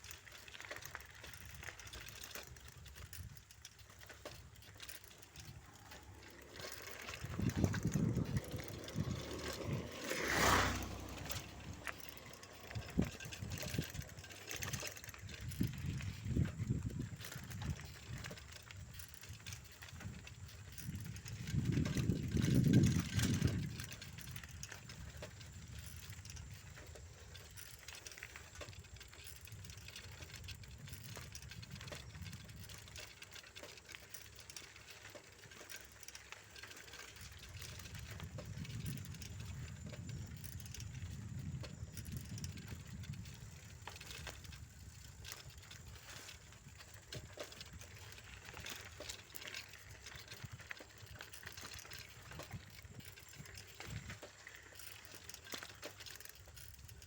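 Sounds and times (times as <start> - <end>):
bicycle rattles and clicks: 0.0 - 57.0
wind rumble on microphone: 5.3 - 33.2, 37.2 - 54.6.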